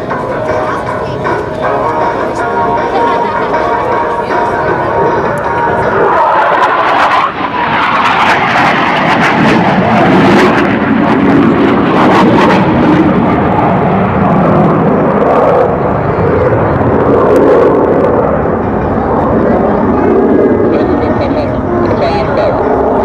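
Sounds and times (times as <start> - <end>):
jets roaring past: 0.0 - 23.0.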